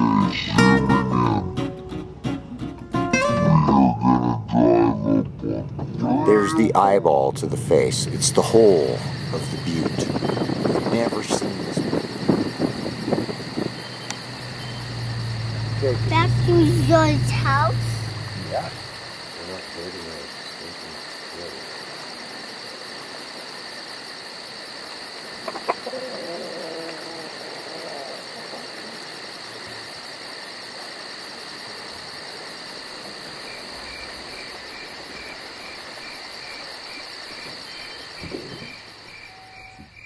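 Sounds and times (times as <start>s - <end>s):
insects trilling: 0.0s - 2.2s, 3.5s - 40.0s.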